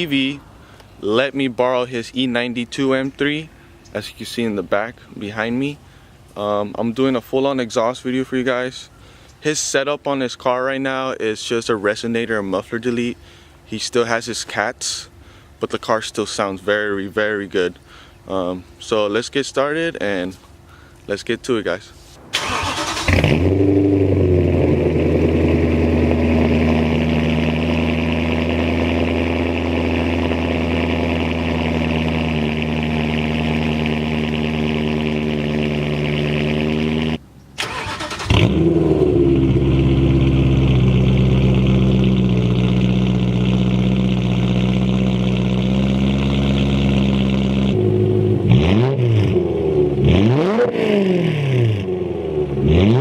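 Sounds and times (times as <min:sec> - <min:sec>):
car engine idling: 0:00.0 - 0:09.6, 0:22.4 - 0:53.0
engine throttle blips: 0:22.3 - 0:53.0.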